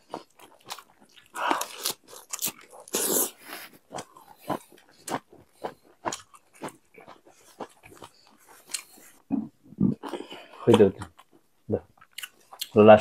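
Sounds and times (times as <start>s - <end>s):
chewing with wet mouth clicks: 3.9s - 9.1s, 9.9s - 12.8s.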